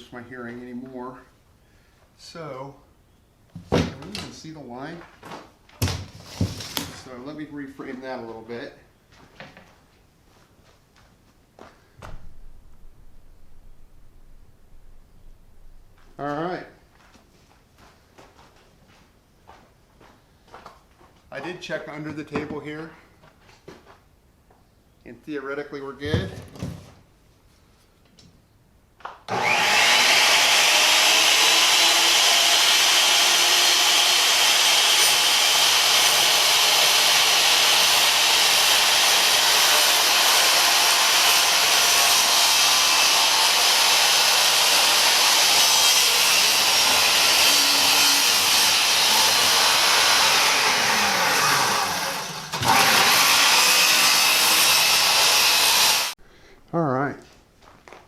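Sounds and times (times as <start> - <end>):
circular saw cutting board: 29.3 - 56.2.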